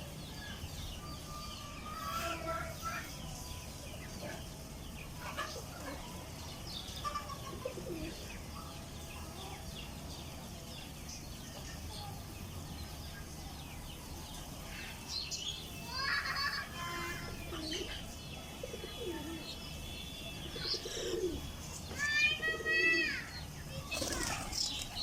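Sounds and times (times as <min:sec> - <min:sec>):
chicks peeping: 0:23.3 - 0:25.0.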